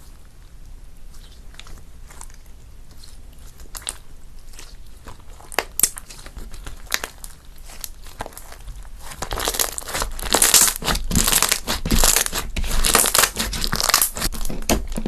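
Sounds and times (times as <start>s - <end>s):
slime sticky crackles and clicks: 4.6s - 14.4s.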